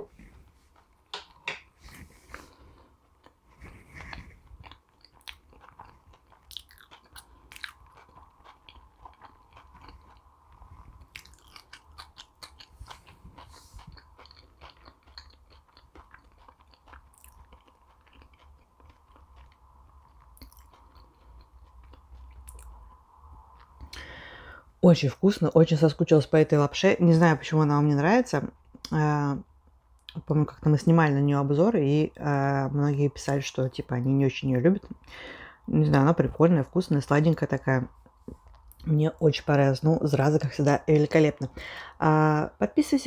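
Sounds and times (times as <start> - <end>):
person chewing food: 0.0 - 24.6, 37.9 - 38.9.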